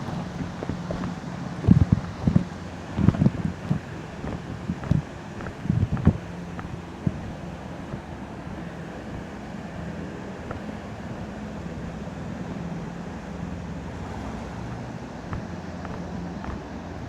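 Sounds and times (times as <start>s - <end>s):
motorcycle engine running: 0.0s - 9.4s, 13.7s - 17.0s
wind rushing over microphone: 0.0s - 17.0s.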